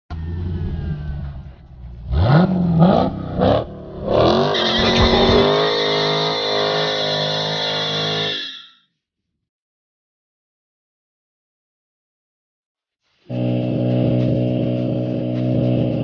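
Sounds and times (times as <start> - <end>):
car engine revving: 0.4 - 8.0, 13.3 - 16.0
tyres squealing: 4.2 - 8.8.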